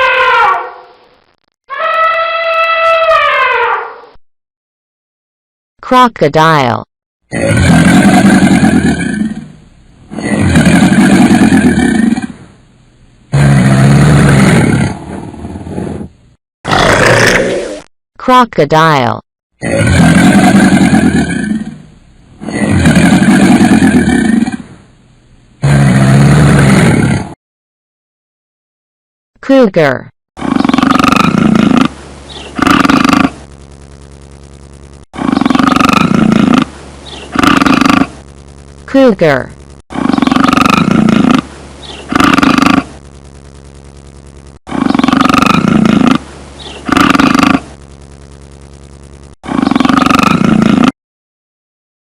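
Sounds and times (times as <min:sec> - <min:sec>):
crocodile growling: 0:07.3 - 0:12.4, 0:13.3 - 0:16.1, 0:16.7 - 0:17.8, 0:19.6 - 0:21.8, 0:22.4 - 0:24.7, 0:25.6 - 0:27.4, 0:30.4 - 0:33.4, 0:35.1 - 0:38.2, 0:39.9 - 0:43.0, 0:44.7 - 0:47.8, 0:49.4 - 0:50.9.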